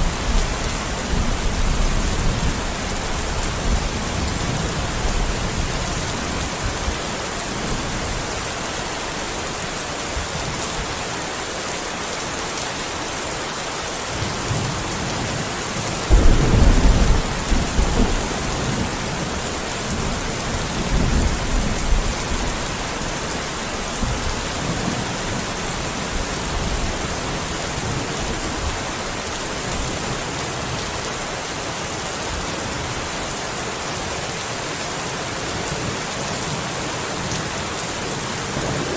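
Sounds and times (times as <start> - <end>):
steady rain: 0.0 - 38.9
thunder rumble: 16.1 - 23.1, 38.3 - 38.9.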